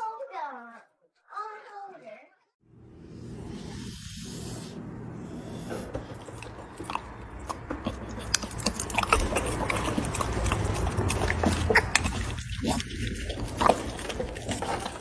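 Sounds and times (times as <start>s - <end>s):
dog chewing and gnawing: 5.5s - 15.0s.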